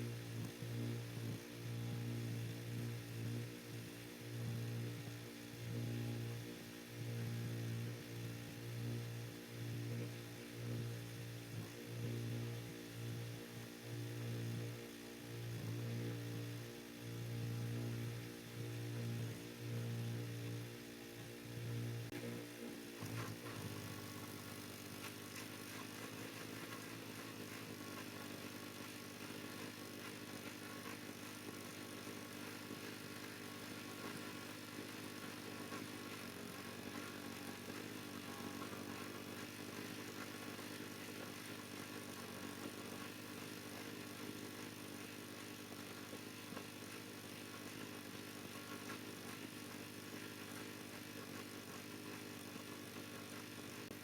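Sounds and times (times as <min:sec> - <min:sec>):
motor running: 0:17.8 - 0:54.0.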